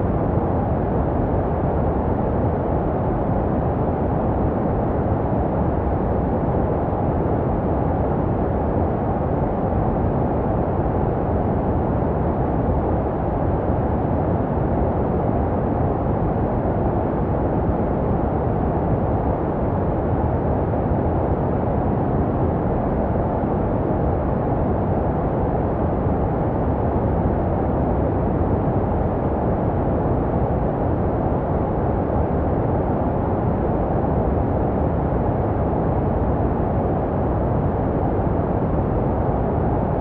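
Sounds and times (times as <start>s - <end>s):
deep muffled white noise: 0.0s - 40.0s.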